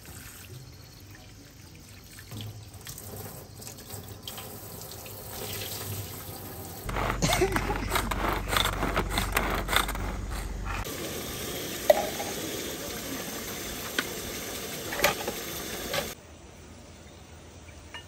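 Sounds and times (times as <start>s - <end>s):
low hum: 6.9s - 10.9s
shallots sizzling in oil: 10.8s - 16.2s.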